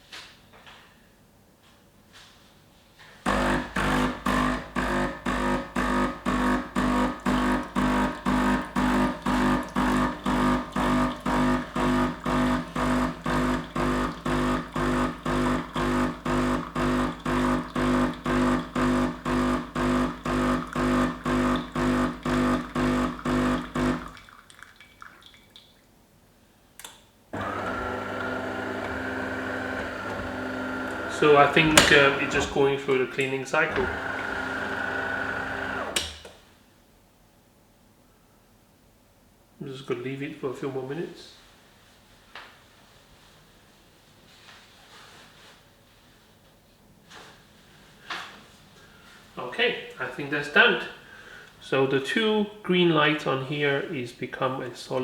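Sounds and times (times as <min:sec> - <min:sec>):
coffee machine pump buzzing: 0:03.2 - 0:24.2, 0:27.4 - 0:36.2
steady hum: 0:03.3 - 0:24.1.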